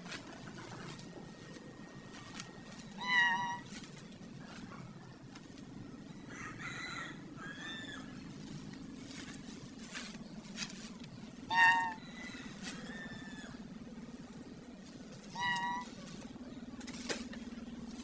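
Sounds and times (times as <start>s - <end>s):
low steady hum: 0.0s - 18.0s
short animal calls: 2.8s - 3.8s, 11.4s - 12.0s, 15.2s - 16.2s.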